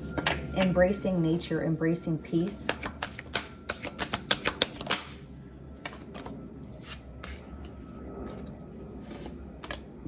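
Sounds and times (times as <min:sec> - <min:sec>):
cards snapping and tapping: 0:02.7 - 0:05.2.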